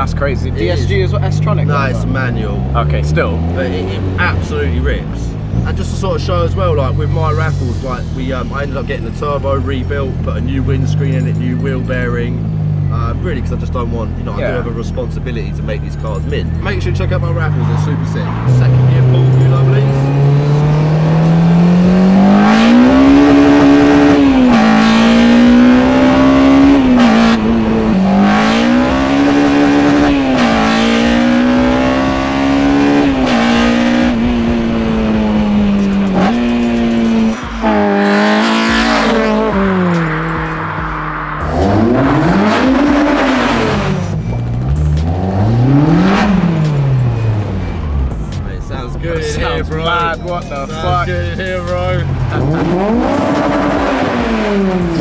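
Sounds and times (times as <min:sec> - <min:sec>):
car engine accelerating: 0:00.0 - 0:55.0
engine revving blips: 0:15.4 - 0:48.4, 0:51.6 - 0:55.0.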